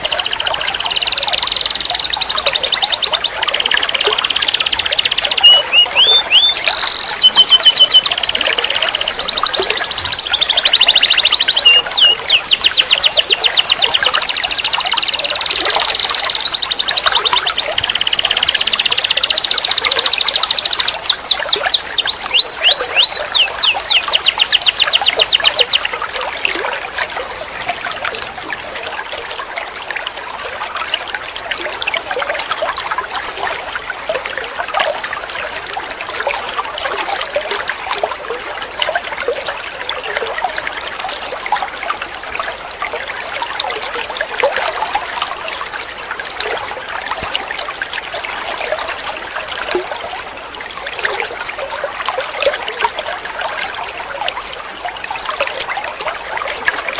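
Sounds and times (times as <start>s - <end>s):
canary singing trills: 0.0s - 25.9s
running water trickling: 0.0s - 56.9s.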